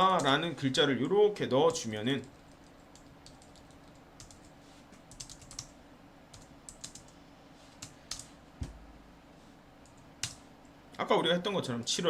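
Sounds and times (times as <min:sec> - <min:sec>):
heavy thump: 0:08.6 - 0:09.0.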